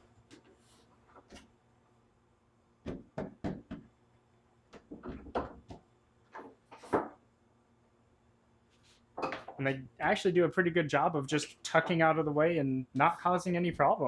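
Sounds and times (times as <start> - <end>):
wooden knocks and clunks: 4.7 - 7.2.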